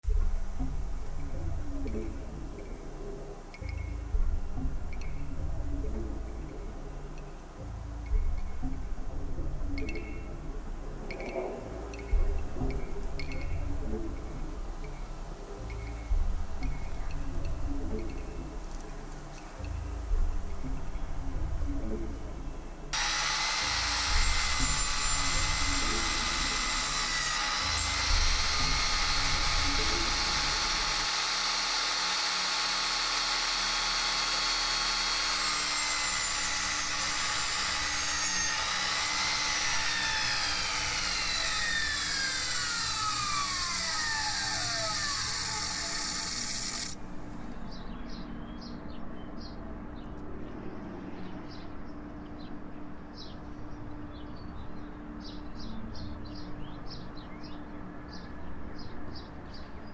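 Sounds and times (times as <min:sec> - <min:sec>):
power tool whining: 0:23.0 - 0:47.0.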